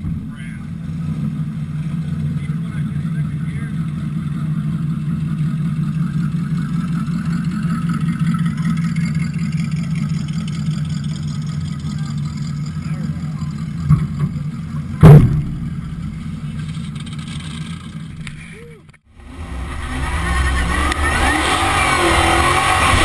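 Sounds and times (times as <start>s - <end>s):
car engine running steadily: 0.0s - 23.0s
sharp loud thump: 15.0s - 16.4s.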